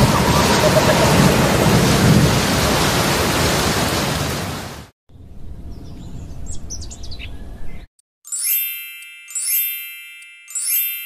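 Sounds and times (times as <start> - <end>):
heavy rain and storm: 0.0 - 4.9.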